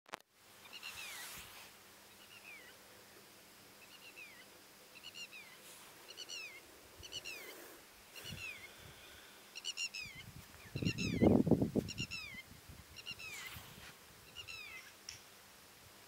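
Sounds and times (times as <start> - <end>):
faint outdoor hiss: 0.1 - 16.0
bird calling with sharp notes: 3.8 - 7.6, 9.6 - 12.4, 14.3 - 15.0.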